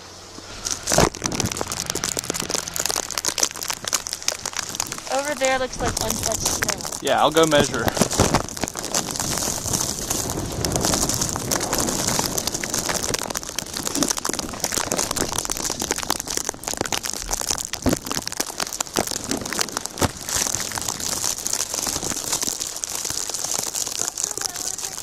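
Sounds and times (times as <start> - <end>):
snowfall pattering: 0.0 - 25.0
footsteps crunching through snow: 0.4 - 15.8.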